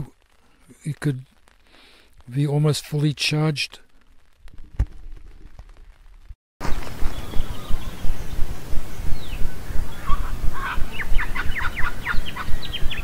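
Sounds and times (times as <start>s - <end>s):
wind rumble on microphone: 4.4s - 13.0s
wild birds calling: 6.6s - 13.0s.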